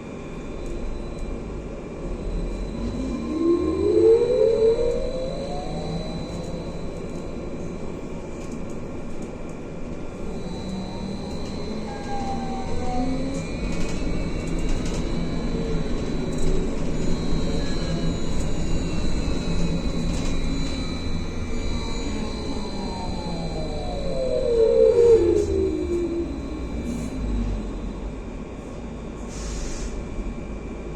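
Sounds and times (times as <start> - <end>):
rumble of tyres and body: 0.0 - 29.3
electric traction drive whining: 2.0 - 8.7, 10.0 - 28.1.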